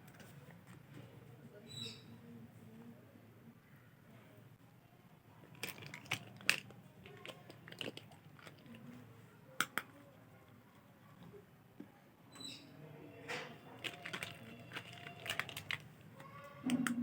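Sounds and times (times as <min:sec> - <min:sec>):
plastic crackling and clicking: 0:05.5 - 0:09.0, 0:09.6 - 0:10.0, 0:13.3 - 0:17.0.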